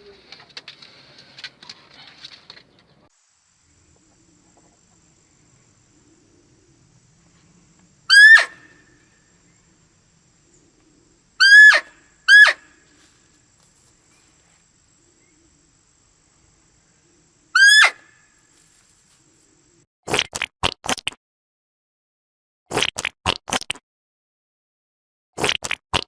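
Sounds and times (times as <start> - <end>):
high-pitched animal calls: 8.1 - 9.0, 11.4 - 12.9, 17.5 - 18.2.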